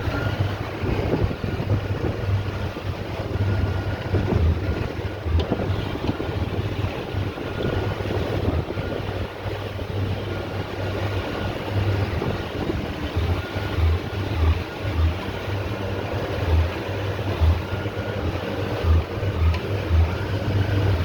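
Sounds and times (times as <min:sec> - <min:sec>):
motorboat engine running: 0:00.0 - 0:21.0
rush of wind and water: 0:00.0 - 0:21.0
wind buffeting microphone: 0:00.0 - 0:21.0.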